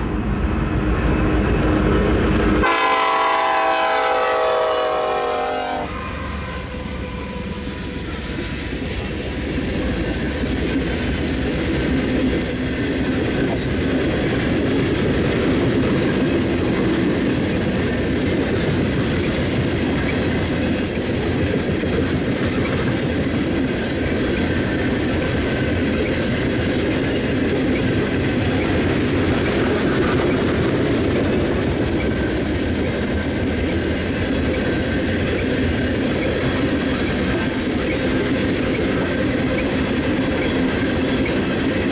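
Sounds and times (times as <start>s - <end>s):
train wheels rumbling on rails: 0.0s - 41.9s
clickety-clack over rail joints: 7.4s - 41.9s.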